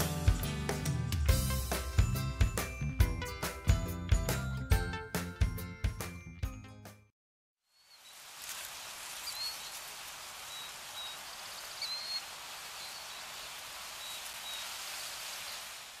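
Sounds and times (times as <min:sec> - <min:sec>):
steady hiss: 0:07.8 - 0:16.0
high bird chirps: 0:09.2 - 0:09.8, 0:10.5 - 0:15.7.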